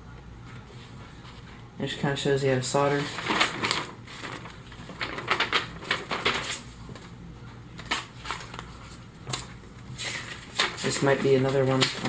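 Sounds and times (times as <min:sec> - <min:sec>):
paper rustling and crinkling: 0:02.6 - 0:07.2, 0:07.8 - 0:12.0.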